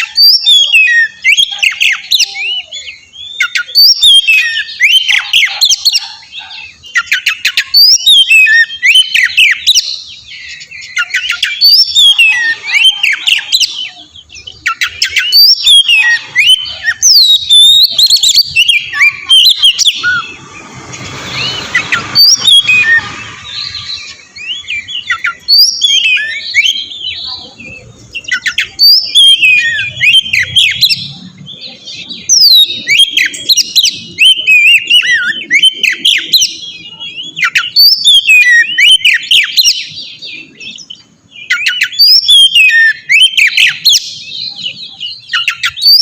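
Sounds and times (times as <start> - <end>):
songbird singing whistles and chatter: 0.0 - 46.0
harsh noisy sound: 18.6 - 24.4.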